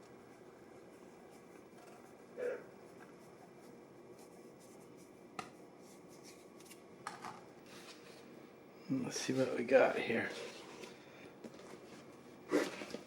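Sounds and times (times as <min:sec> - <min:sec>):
hands rubbing and scratching: 0:02.9 - 0:06.8.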